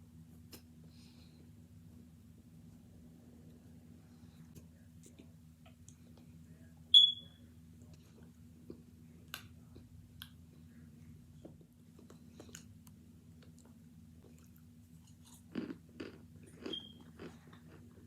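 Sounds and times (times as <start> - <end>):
steady low hum: 0.0 - 18.0
chewing hard crunchy chunks: 11.9 - 18.0.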